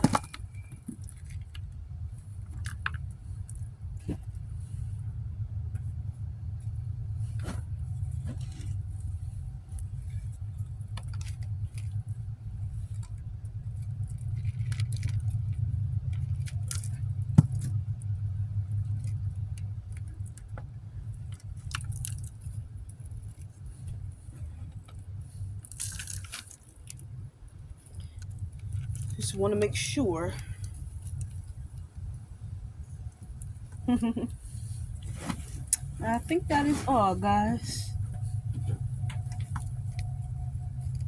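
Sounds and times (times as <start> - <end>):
low rumble: 0.0 - 41.0.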